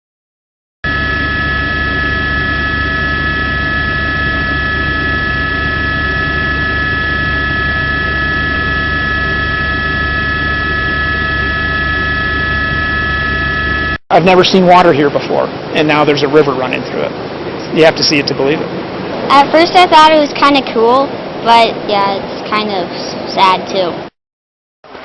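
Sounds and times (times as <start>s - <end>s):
mechanical drone with whining tones: 0.9s - 24.1s.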